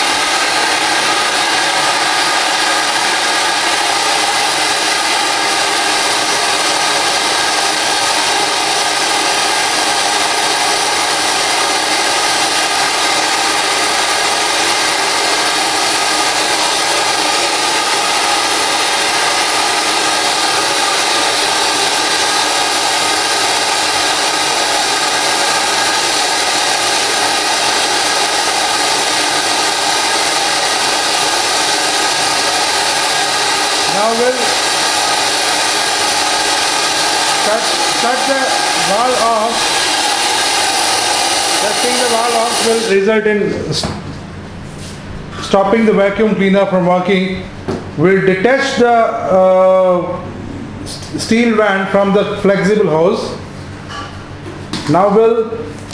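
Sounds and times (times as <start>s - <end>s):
air-driven vacuum cleaner hissing: 0.0s - 54.0s.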